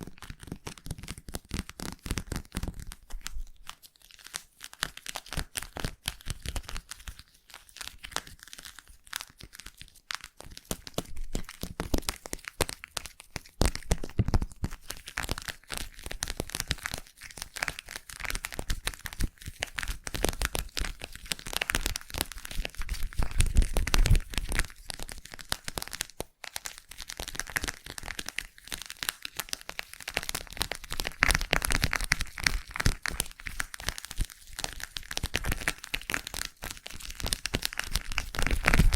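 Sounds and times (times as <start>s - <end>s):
slime squishing with sticky crackles: 0.0s - 38.9s.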